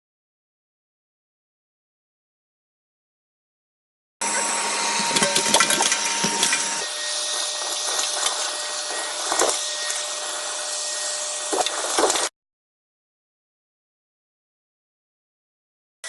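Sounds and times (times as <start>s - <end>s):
vacuum cleaner running: 4.2s - 12.3s.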